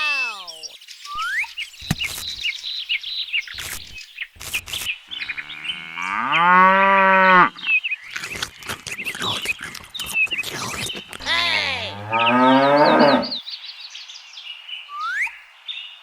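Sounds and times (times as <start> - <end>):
birds chirping: 0.0 - 14.3
cow mooing: 5.5 - 7.6, 11.2 - 13.4.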